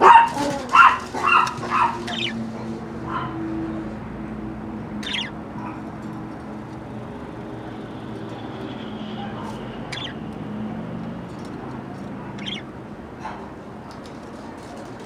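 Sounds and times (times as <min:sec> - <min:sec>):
budgies squawking and chirping: 0:00.0 - 0:03.6, 0:04.9 - 0:05.8, 0:07.7 - 0:10.3, 0:11.4 - 0:12.8.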